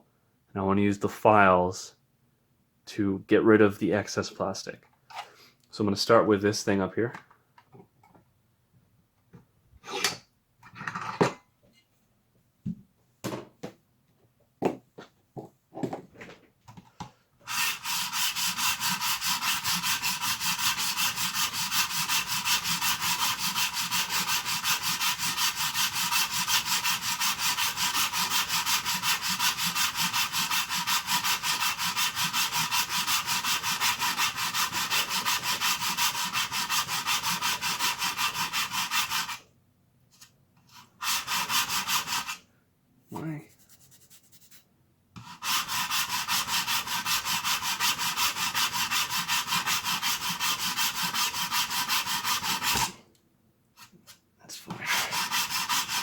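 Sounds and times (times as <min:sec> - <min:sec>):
file scraping plastic: 0:17.4 - 0:39.4, 0:40.2 - 0:42.4, 0:45.2 - 0:53.0, 0:53.8 - 0:56.0.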